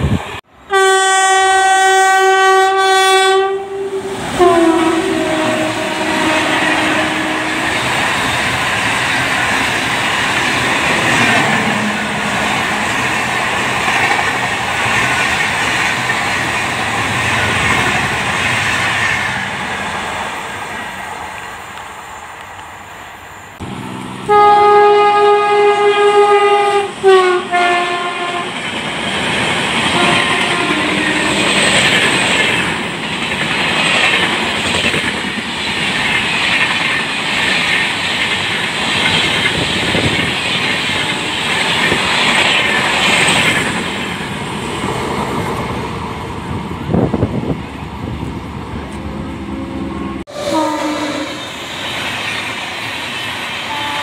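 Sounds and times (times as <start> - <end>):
train coaches rumbling and clattering: 0.0 - 0.5, 1.3 - 54.0
locomotive horn: 0.7 - 8.1, 11.1 - 13.0, 24.2 - 28.6, 29.8 - 31.7, 49.0 - 51.5, 53.6 - 54.0.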